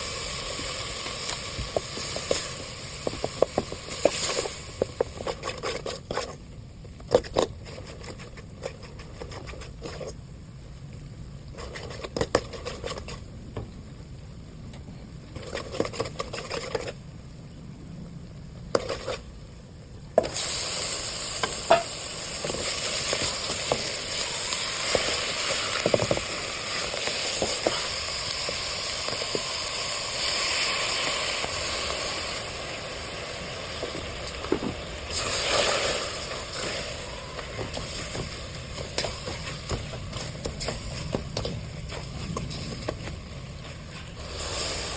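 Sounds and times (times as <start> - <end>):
food sizzling in hot oil: 0.0 - 6.2, 20.2 - 44.9.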